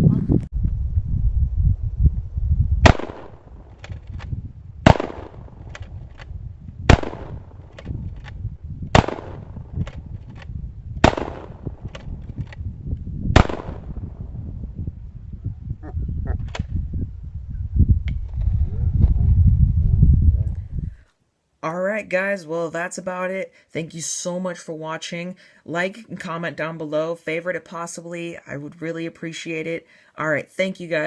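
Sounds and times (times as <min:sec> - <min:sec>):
gunshots with echo: 0:02.8 - 0:03.4, 0:04.8 - 0:05.5, 0:06.9 - 0:07.5, 0:08.9 - 0:09.7, 0:11.0 - 0:11.9, 0:13.4 - 0:14.1.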